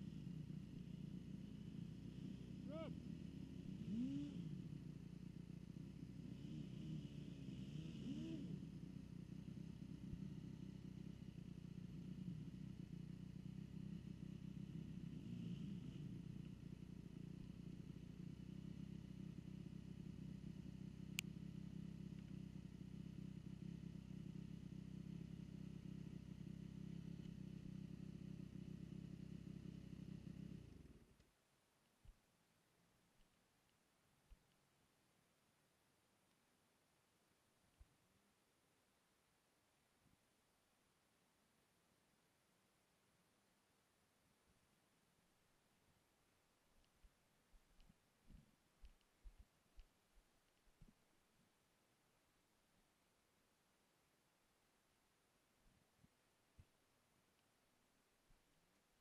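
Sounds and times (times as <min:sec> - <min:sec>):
faint dirt bike engines: 0:00.0 - 0:59.0
click: 0:21.1 - 0:21.4, 0:33.2 - 0:34.6, 0:36.2 - 0:36.4, 0:46.8 - 0:51.0, 0:56.0 - 0:57.5.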